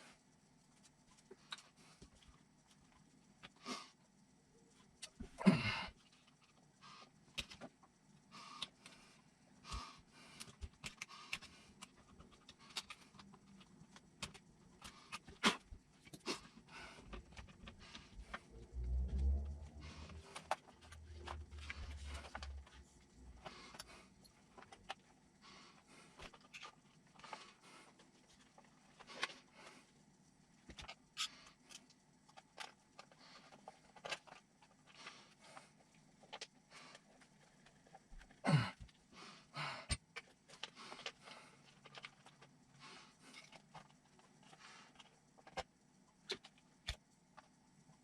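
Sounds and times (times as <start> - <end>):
small parts and tools handled: 20.0 - 25.2, 30.6 - 38.4, 39.9 - 47.6.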